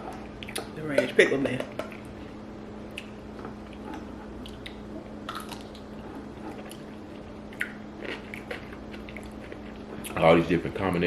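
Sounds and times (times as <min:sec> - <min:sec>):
pickle crunching: 0:02.9 - 0:10.2
wet mouth sounds: 0:07.5 - 0:10.2.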